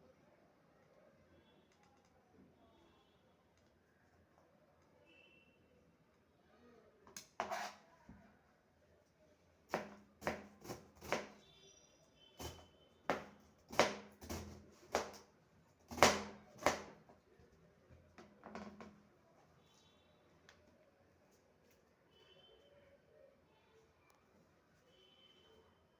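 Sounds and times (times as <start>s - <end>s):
knife chopping on cutting board: 9.7s - 11.4s, 13.1s - 15.2s, 15.9s - 17.0s.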